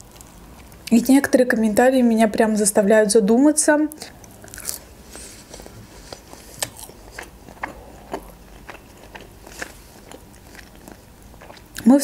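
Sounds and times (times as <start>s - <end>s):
person chewing food: 4.0s - 11.9s.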